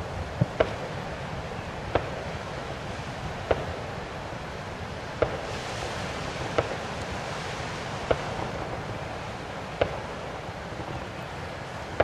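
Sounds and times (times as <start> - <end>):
fireworks bangs: 5.2 - 6.9, 8.0 - 8.8, 9.8 - 10.2.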